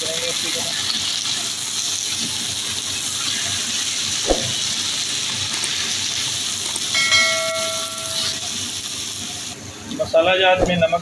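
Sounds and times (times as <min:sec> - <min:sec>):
vegetables sizzling in oil: 0:00.0 - 0:11.0
bell-like chime: 0:07.0 - 0:08.4.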